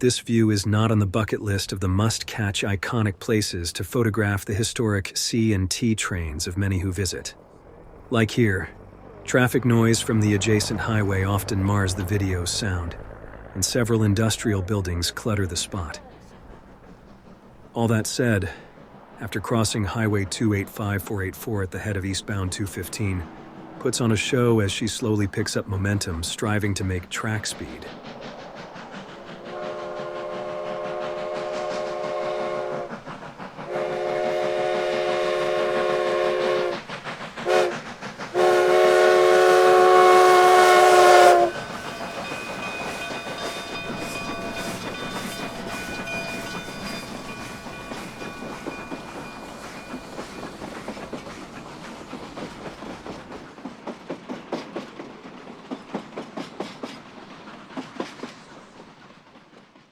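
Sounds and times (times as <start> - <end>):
wheels clicking over rail joints: 0.0 - 59.9
steam whistle blasts: 29.5 - 33.0, 33.6 - 36.8, 37.4 - 49.1.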